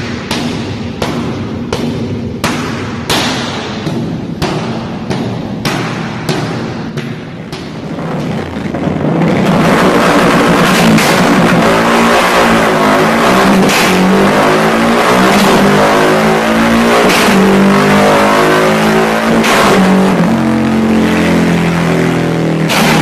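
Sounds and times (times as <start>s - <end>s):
motorcycle engine revving: 6.8s - 23.0s
sharp loud exhaust bursts: 7.7s - 23.0s.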